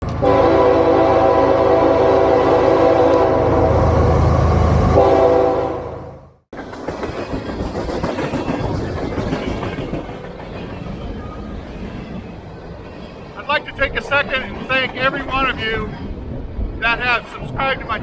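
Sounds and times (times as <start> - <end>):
locomotive horn chord: 0.1 - 3.9, 4.9 - 6.1
train wheels clacking on rails: 6.5 - 12.4.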